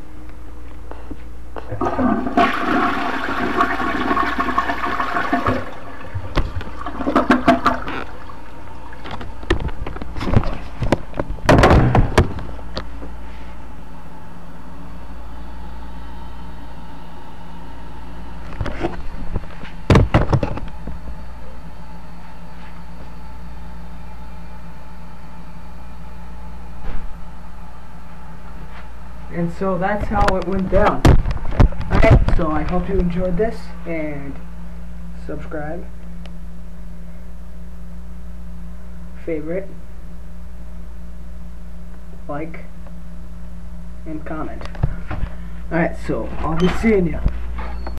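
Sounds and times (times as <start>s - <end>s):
toilet flushing: 1.7s - 9.1s.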